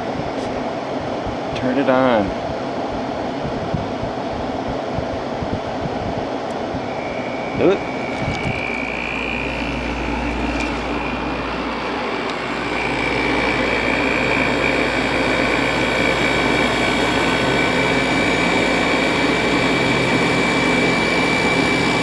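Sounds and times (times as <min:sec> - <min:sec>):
air conditioner fan whine: 0:00.0 - 0:22.0
compressor running: 0:06.4 - 0:22.0.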